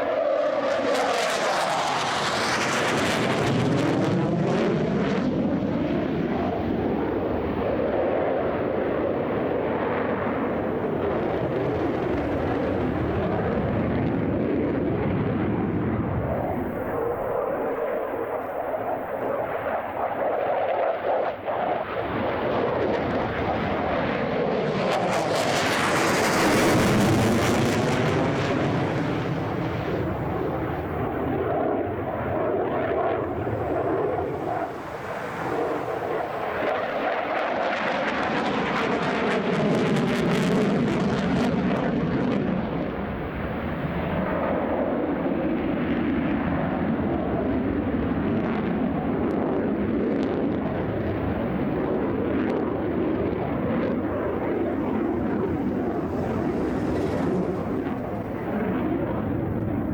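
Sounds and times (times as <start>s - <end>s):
jet engines roaring: 0.0s - 59.9s.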